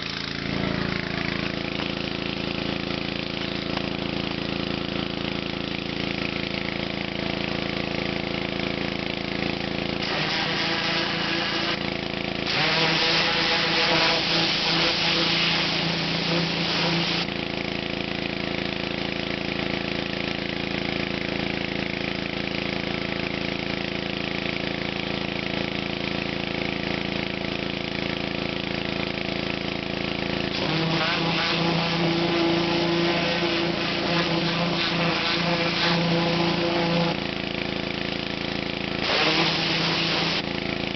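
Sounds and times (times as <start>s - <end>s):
pressure washer engine running: 0.0s - 40.9s
water jet hissing: 10.0s - 11.8s, 12.5s - 17.3s, 30.5s - 37.2s, 39.0s - 40.5s.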